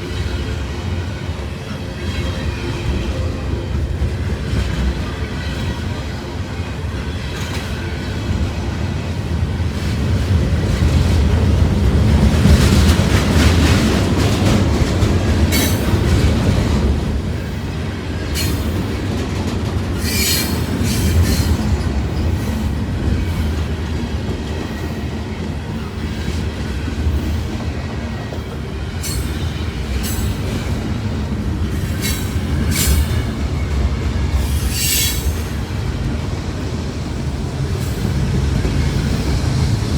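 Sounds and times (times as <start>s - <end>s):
freight train rumbling on rails: 0.0s - 39.9s
high-pitched wheel squeals: 20.0s - 21.6s, 34.4s - 35.6s.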